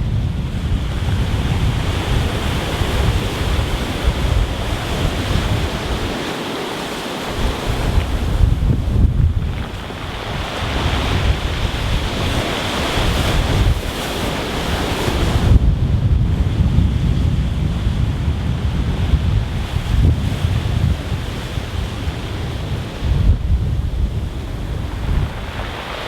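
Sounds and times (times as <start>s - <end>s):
wind buffeting microphone: 0.0s - 26.0s
waves breaking on pebbles: 4.6s - 15.2s, 24.7s - 26.0s.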